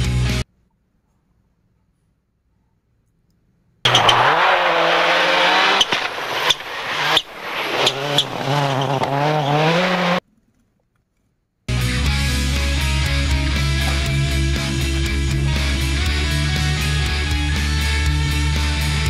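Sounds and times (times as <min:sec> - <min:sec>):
racing engine revving: 0:03.9 - 0:10.2, 0:12.0 - 0:19.0
sharp engine cracks: 0:03.9 - 0:10.2.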